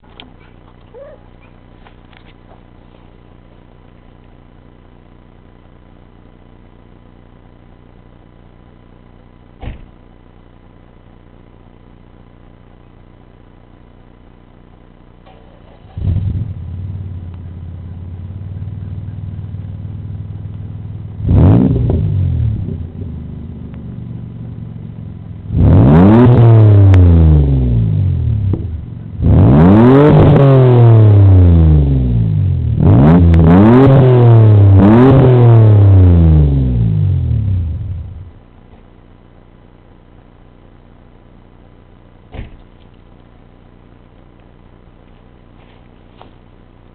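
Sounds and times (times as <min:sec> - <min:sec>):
van engine idling and revving: 0:15.2 - 0:38.5.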